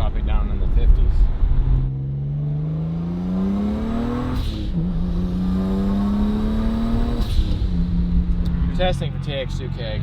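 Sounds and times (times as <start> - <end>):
car engine accelerating: 1.3 - 9.3.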